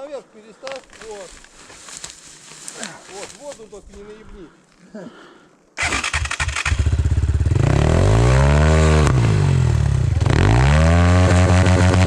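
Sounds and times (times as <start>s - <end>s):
motorcycle engine revving: 5.8s - 12.0s.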